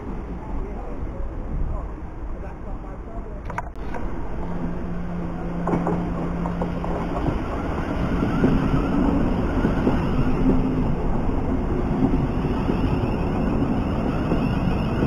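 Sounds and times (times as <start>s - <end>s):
train wheels rumbling on rail: 0.0s - 15.0s
electric train motor hum: 3.8s - 15.0s.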